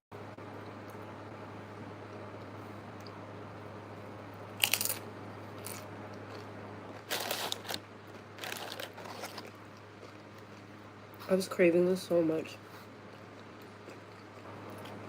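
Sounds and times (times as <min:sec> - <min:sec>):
crunching bites of food: 0:04.5 - 0:10.8.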